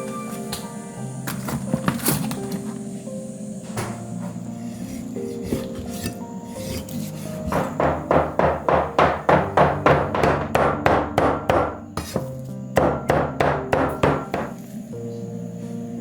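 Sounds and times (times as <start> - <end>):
background music: 0.0 - 16.0
knife chopping on wooden board: 4.9 - 14.6.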